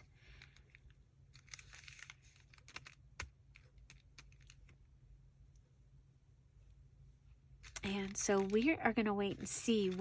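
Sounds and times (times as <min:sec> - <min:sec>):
paper rustling: 0:00.0 - 0:04.7.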